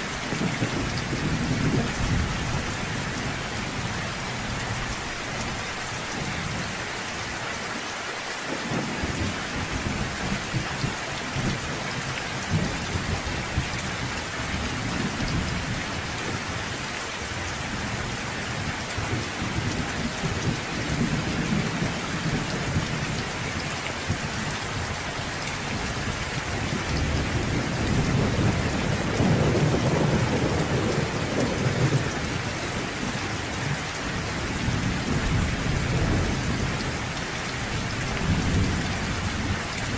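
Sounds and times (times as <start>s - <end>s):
heavy rain falling: 0.0s - 39.9s
rolling thunder: 26.8s - 33.8s.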